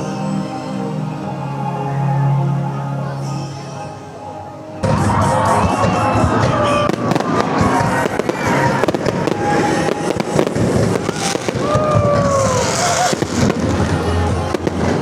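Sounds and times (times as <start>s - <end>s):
fireworks bangs and crackles: 4.8s - 15.0s.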